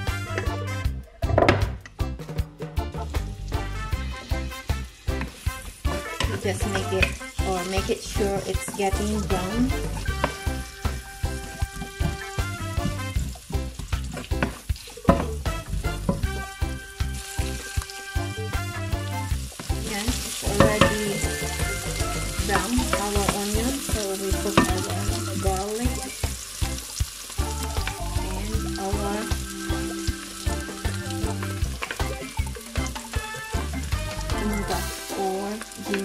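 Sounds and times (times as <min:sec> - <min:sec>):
onions sizzling in hot oil: 0:03.0 - 0:36.0
wooden spoon scraping a pan: 0:04.0 - 0:18.2.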